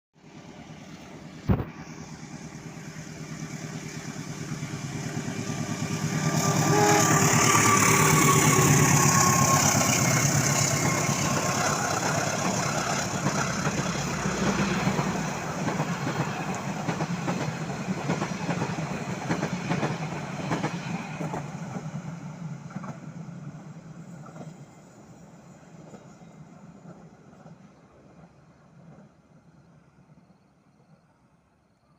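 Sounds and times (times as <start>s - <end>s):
train passing: 0.2s - 31.5s.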